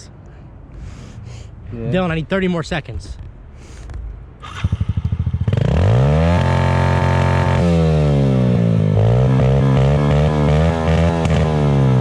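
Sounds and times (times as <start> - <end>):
dirt bike engine revving: 4.4 - 12.0.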